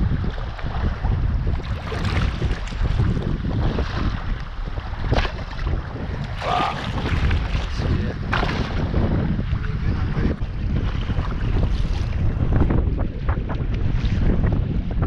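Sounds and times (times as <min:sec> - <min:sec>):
sea water sounds: 0:00.0 - 0:14.3
wind buffeting microphone: 0:00.0 - 0:15.0
sharp water splashes: 0:06.2 - 0:08.8.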